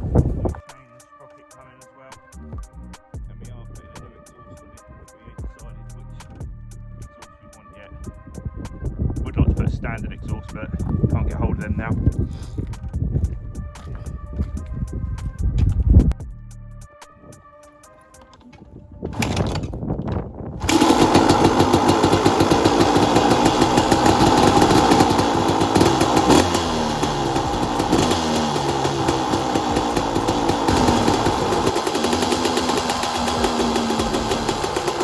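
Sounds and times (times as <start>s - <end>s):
two-stroke engine sputtering and running: 19.2s - 19.7s, 20.6s - 35.0s.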